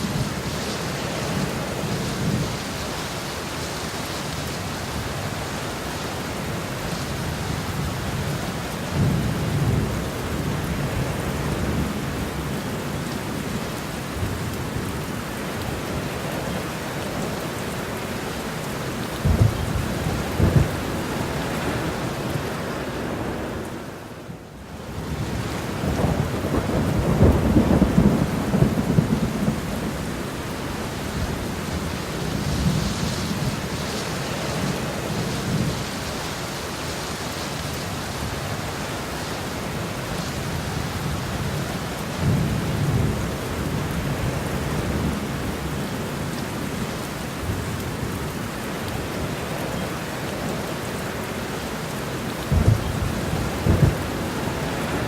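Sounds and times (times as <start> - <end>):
heavy rain: 0.0 - 55.0
rolling thunder: 19.2 - 22.3, 25.0 - 30.2, 52.5 - 55.0.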